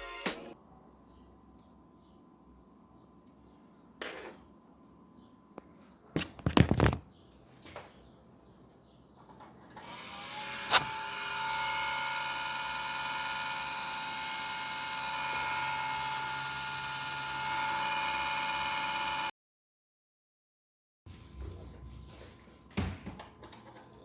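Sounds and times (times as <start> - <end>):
electric motor whining: 9.8 - 19.3.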